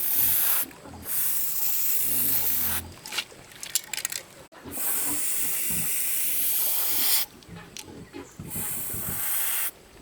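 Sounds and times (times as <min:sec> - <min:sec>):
loud steady hiss: 0:04.8 - 0:07.3, 0:08.5 - 0:10.0.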